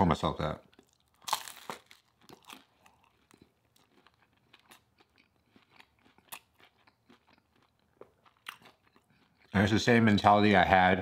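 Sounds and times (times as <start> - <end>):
person chewing food: 0.6 - 9.8.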